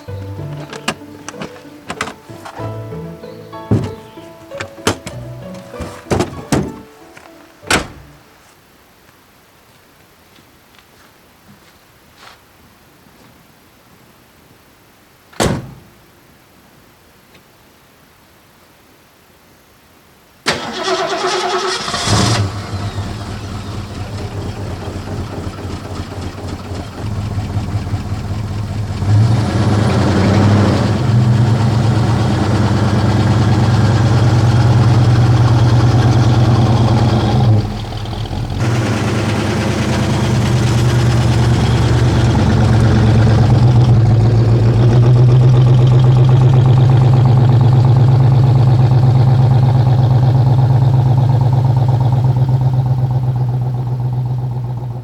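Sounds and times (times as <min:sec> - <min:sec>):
starter cranking engine: 0:20.5 - 0:28.7, 0:31.2 - 0:52.5
car engine idling: 0:20.5 - 0:55.0.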